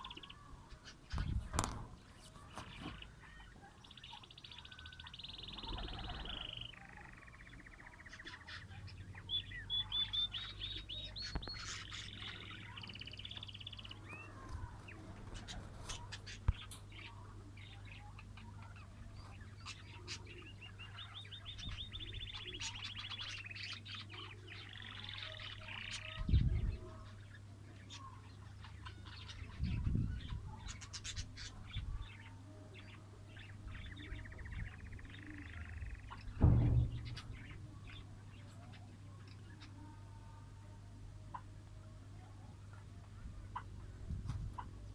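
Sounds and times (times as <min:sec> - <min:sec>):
lovebirds chattering: 0:00.0 - 0:44.9
dull low thud: 0:36.1 - 0:38.4.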